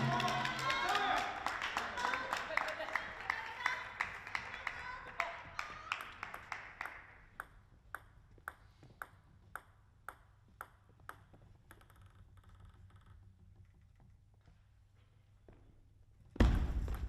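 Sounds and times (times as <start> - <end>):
table tennis ball bouncing: 6.0 - 13.2.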